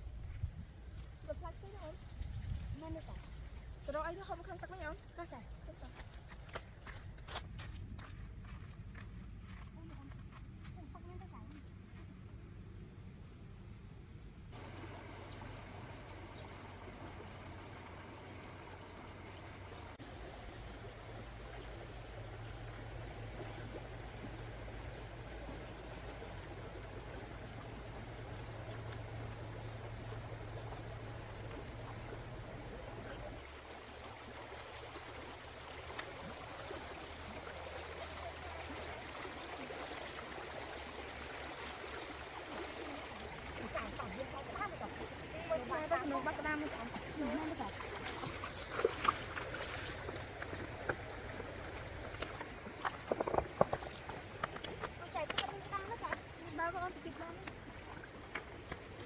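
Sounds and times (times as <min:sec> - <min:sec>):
flowing water rushing: 0:14.6 - 0:59.0.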